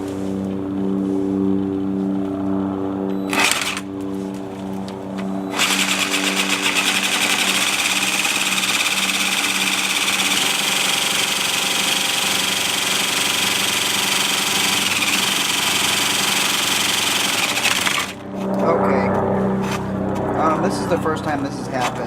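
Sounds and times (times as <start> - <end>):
jigsaw cutting tile: 3.3 - 3.8, 5.5 - 18.2.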